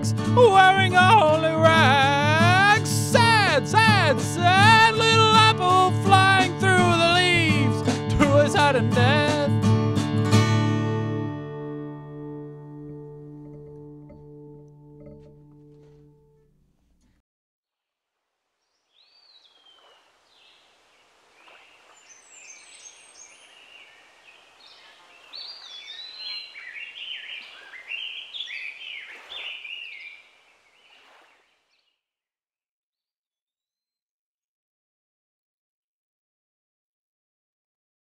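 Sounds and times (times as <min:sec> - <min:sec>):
distorted electric guitar: 0:00.0 - 0:16.4
songbirds chirping and singing: 0:21.4 - 0:31.2.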